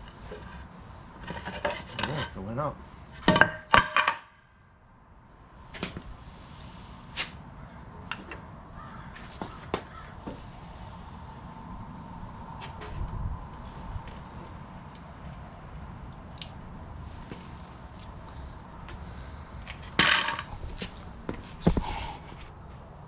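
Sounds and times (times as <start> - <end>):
faint steady hiss: 4.6 - 8.5.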